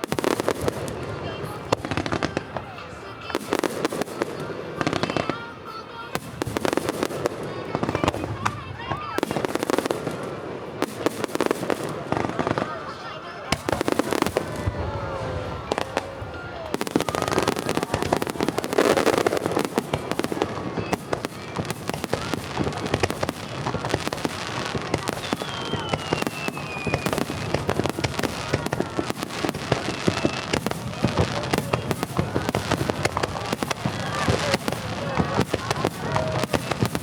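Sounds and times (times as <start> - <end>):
fireworks bursting and crackling: 0.0 - 37.0
firework falling whistle: 13.5 - 37.0.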